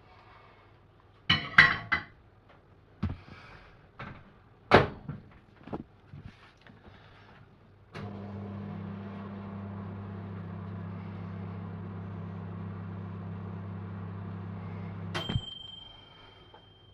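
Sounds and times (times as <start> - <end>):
microwave oven humming: 7.9 - 16.9.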